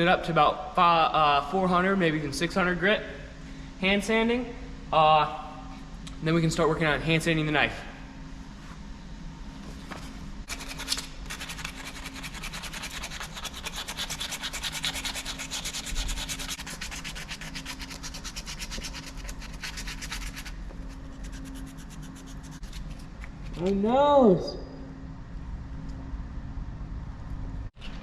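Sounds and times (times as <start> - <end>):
sandpaper rubbing on wood: 10.5 - 23.0.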